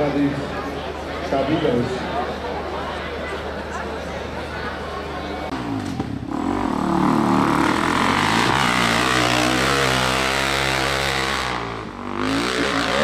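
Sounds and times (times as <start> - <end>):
dirt bike engine revving: 5.5 - 13.0.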